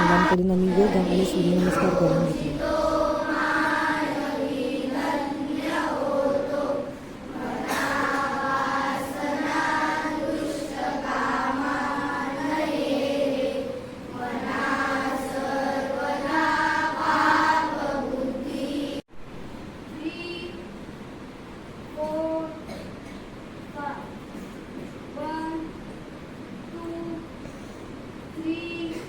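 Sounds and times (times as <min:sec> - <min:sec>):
children chanting in unison: 0:00.0 - 0:19.0.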